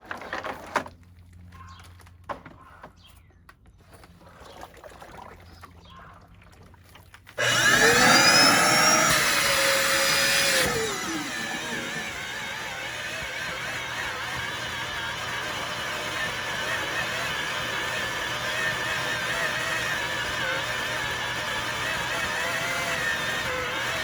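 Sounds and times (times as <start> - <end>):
vacuum cleaner motor whine: 7.4 - 24.0.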